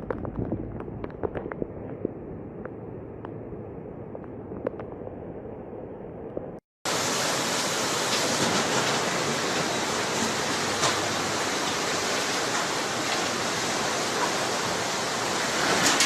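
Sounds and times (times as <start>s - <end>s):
floodwater rushing: 6.9s - 16.0s.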